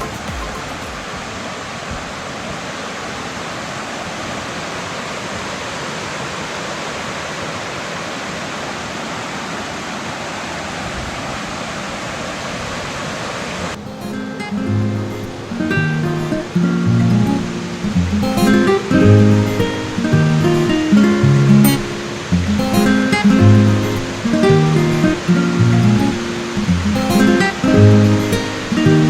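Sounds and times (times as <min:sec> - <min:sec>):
waterfall rushing: 0:00.0 - 0:29.0
acoustic guitar music: 0:13.8 - 0:29.0.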